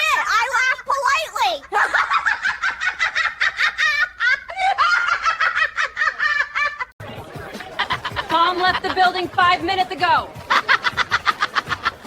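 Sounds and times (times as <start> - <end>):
rapid high-pitched laughter: 7.7 - 9.2, 10.4 - 12.0.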